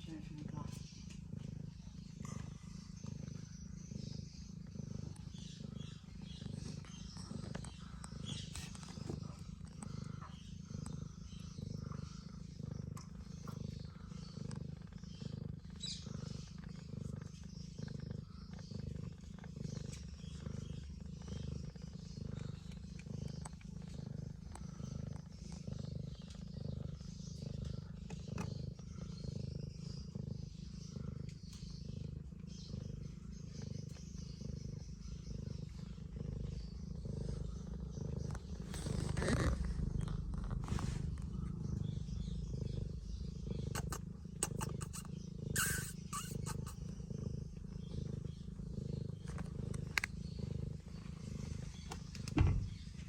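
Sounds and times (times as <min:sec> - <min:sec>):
cat purring: 0:00.0 - 0:53.0.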